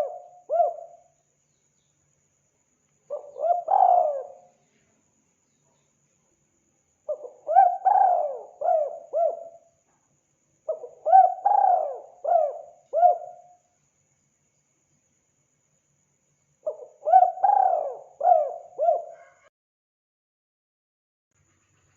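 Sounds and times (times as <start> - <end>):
dove cooing: 0.0 - 1.0, 3.1 - 4.5, 7.1 - 9.7, 10.7 - 13.5, 16.7 - 19.5.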